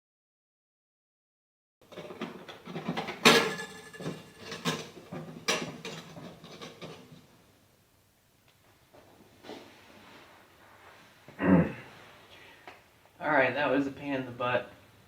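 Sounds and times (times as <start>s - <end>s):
hands knocking and rattling parts: 1.8s - 7.3s.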